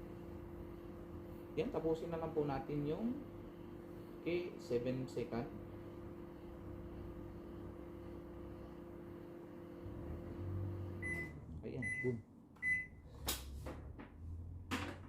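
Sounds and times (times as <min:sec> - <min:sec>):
microwave oven humming: 0:00.0 - 0:15.0
short beeps: 0:11.0 - 0:13.0.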